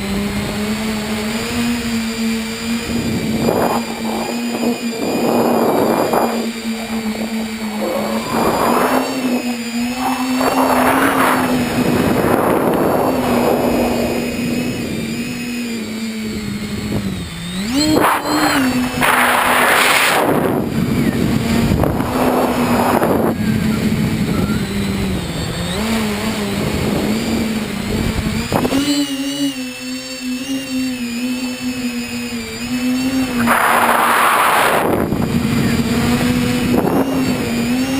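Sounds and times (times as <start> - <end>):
drone motors and propellers humming: 0.0 - 37.9
rushing air noise: 2.8 - 15.2, 33.3 - 35.7.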